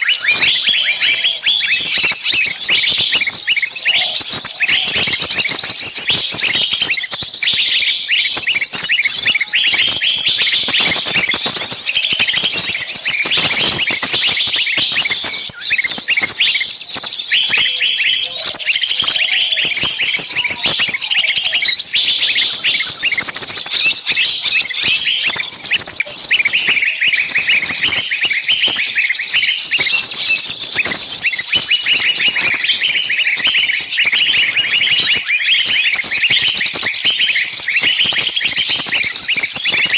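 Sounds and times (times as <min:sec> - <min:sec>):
songbirds calling and chirping: 0:00.0 - 0:39.9.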